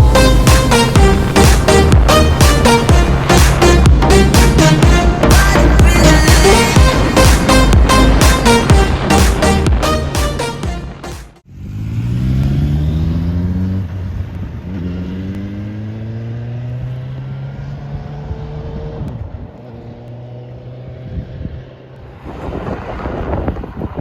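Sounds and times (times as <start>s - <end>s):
motorcycle engine accelerating: 0.0s - 23.9s
wind noise on microphone: 18.2s - 19.6s, 20.9s - 24.0s.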